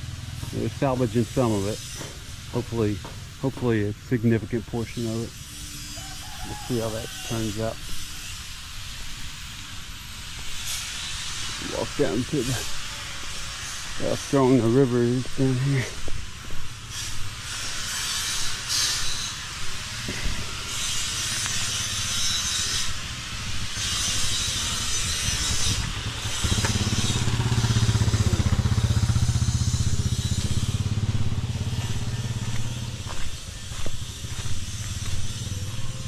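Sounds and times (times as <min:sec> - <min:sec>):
motorcycle engine passing: 0:00.0 - 0:03.6, 0:16.7 - 0:36.0
rushing hiss in gusts: 0:00.0 - 0:36.0.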